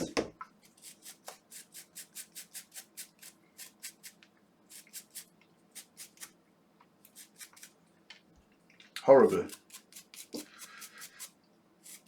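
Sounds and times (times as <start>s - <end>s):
small tool scratchy scrubbing: 0.6s - 6.3s, 7.0s - 7.8s, 9.3s - 12.0s.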